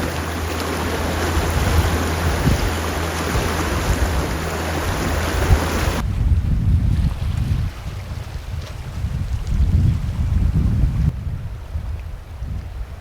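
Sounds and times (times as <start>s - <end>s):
fast river rushing: 0.0s - 6.0s
wind buffeting microphone: 0.0s - 13.0s.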